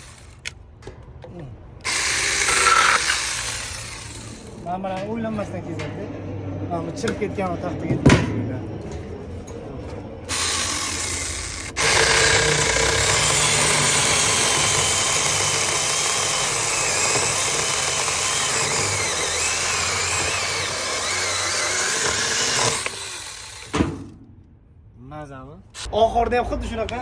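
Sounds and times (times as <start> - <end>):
electric chainsaw cutting wood: 0.0 - 0.4, 1.8 - 4.6, 10.3 - 24.1.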